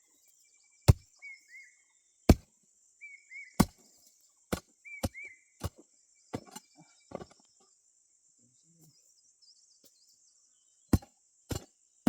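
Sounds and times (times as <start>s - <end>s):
hand tool chopping blows: 3.6s - 3.8s
bird short paired chirps: 4.8s - 5.5s.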